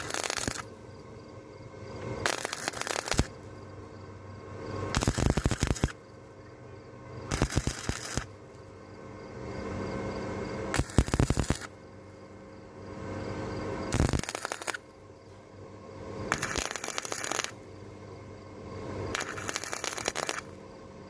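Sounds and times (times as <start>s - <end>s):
welding arc crackling: 0.0s - 0.8s, 2.0s - 3.5s, 4.9s - 6.0s, 7.3s - 8.4s, 10.7s - 11.8s, 13.9s - 14.9s, 16.3s - 17.6s, 19.1s - 20.6s
welder steady hum: 0.0s - 21.0s.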